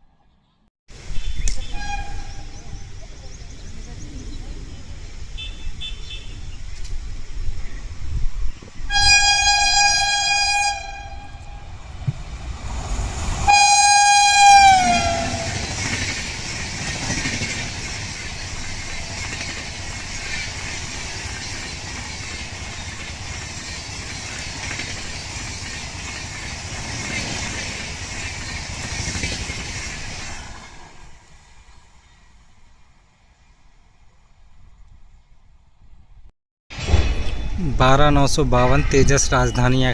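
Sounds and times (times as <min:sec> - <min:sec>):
locomotive horn blasts: 0:01.2 - 0:02.5, 0:08.9 - 0:11.6, 0:13.5 - 0:15.6
train coaches rattling past: 0:08.7 - 0:32.4.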